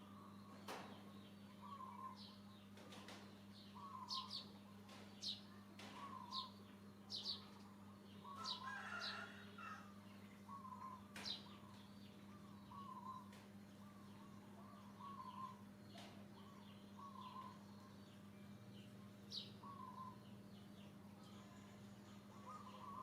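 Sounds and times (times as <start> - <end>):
faint bird chirps: 0.0 - 23.0
steady low hum: 0.0 - 23.0
lower bird warble: 21.2 - 23.0.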